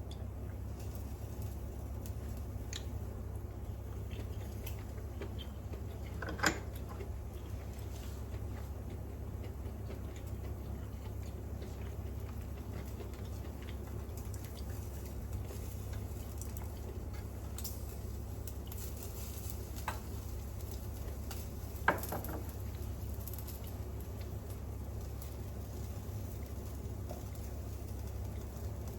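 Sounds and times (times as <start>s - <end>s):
range hood fan hum: 0.0s - 28.9s
meat sizzling on a grill: 14.2s - 28.9s.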